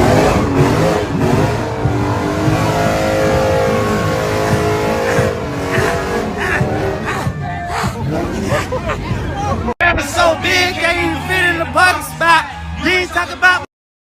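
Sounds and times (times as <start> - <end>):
vehicle engine running: 0.0 - 9.7.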